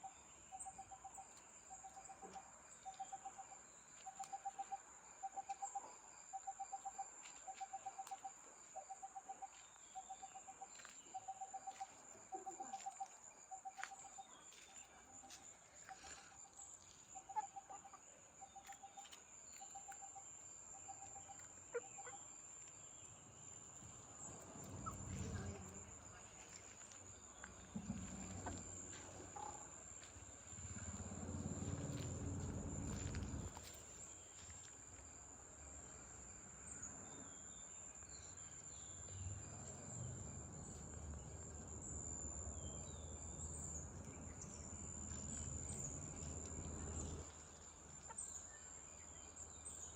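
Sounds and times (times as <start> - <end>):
low rumble: 30.2 - 34.1.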